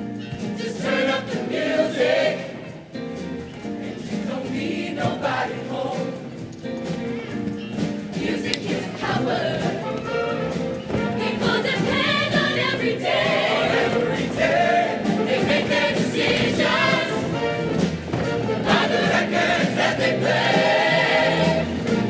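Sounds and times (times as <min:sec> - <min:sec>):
band accompaniment: 0:00.0 - 0:22.0
choir singing: 0:00.6 - 0:02.9, 0:03.8 - 0:06.4, 0:08.1 - 0:22.0.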